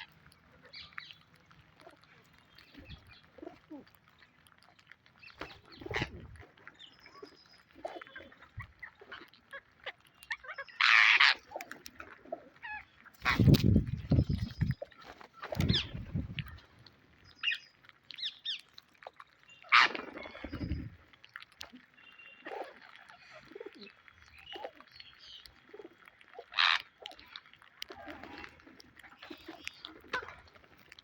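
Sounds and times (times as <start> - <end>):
parrot calling and chattering: 7.2 - 14.6, 25.9 - 27.4.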